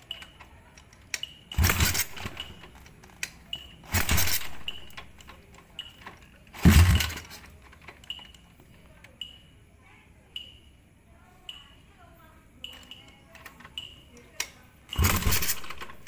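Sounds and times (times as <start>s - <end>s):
engine revving: 1.6s - 2.6s, 3.9s - 4.8s, 6.6s - 7.2s, 15.0s - 16.0s.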